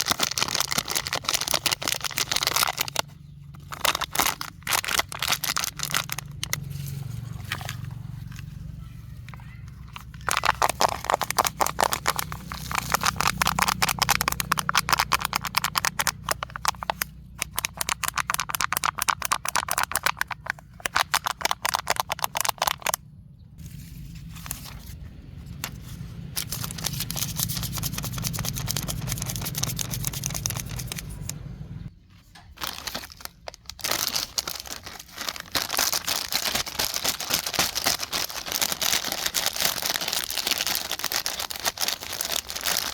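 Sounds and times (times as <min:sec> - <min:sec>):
plastic trash crinkling: 0:00.0 - 0:23.0, 0:23.6 - 0:42.9
low steady hum: 0:23.0 - 0:32.5.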